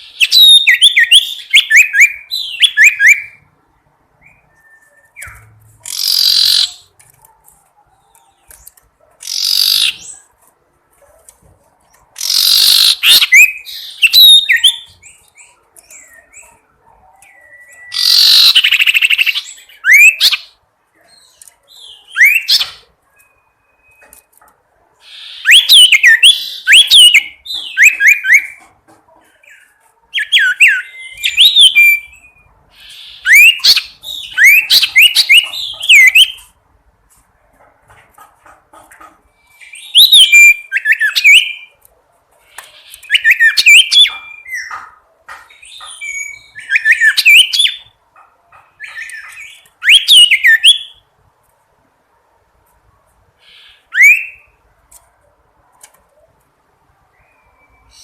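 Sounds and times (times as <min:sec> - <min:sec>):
songbird chirping whistles: 0:04.2 - 0:06.8, 0:12.2 - 0:16.6, 0:17.2 - 0:20.5, 0:25.1 - 0:28.6, 0:39.5 - 0:41.7, 0:48.8 - 0:51.0, 0:53.5 - 0:54.6.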